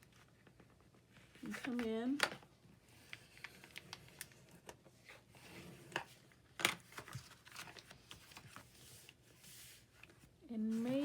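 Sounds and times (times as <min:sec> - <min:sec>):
paper rustling: 0:06.8 - 0:11.0.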